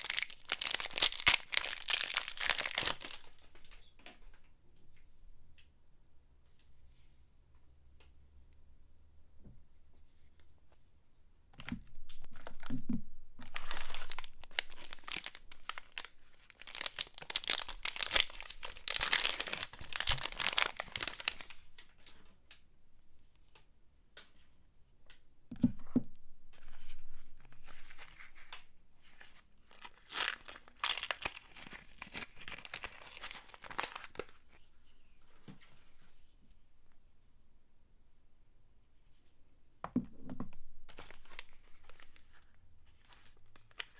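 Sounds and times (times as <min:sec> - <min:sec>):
wrapper tearing and crinkling: 0:00.0 - 0:03.8, 0:13.4 - 0:21.7, 0:29.7 - 0:34.4, 0:40.9 - 0:42.4.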